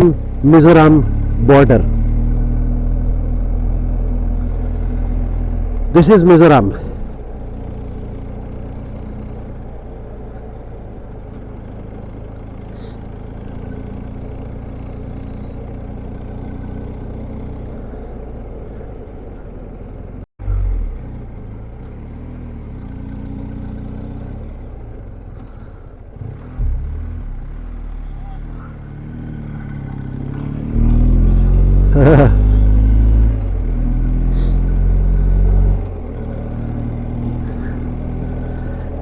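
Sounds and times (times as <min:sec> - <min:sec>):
motorcycle engine hum: 0:00.0 - 0:39.0
road and wind noise: 0:00.0 - 0:39.0
loud low thump: 0:26.5 - 0:27.4.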